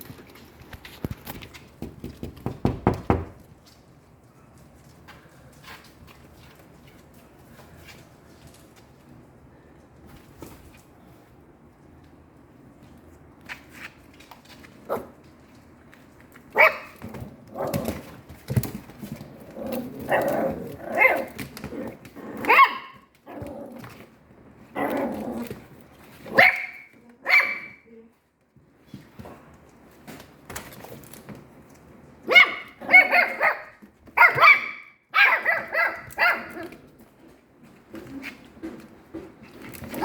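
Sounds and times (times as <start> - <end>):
dog barking: 16.6 - 17.0, 22.5 - 23.0, 26.3 - 27.8, 32.3 - 36.6.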